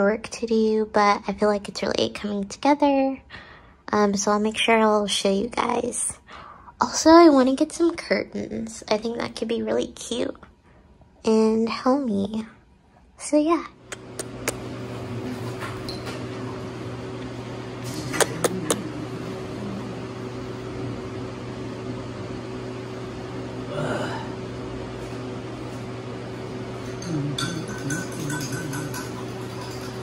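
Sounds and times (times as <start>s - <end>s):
low machine hum: 13.6s - 30.0s.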